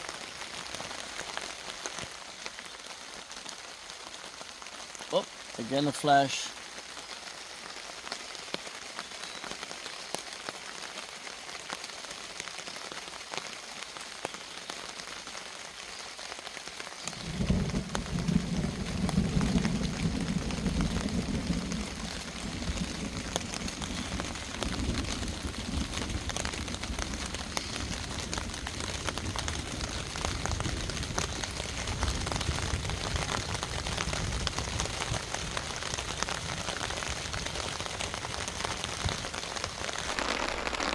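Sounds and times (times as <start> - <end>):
steady rain: 0.0 - 40.9
deep rumble of thunder: 17.2 - 31.2.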